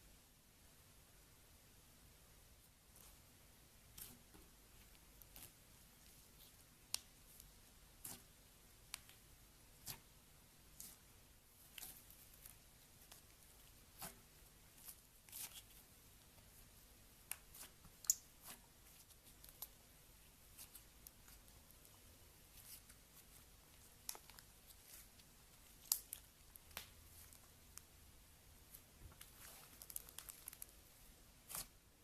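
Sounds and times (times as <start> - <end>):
slime popping and crackling: 25.6 - 27.5, 29.3 - 30.8.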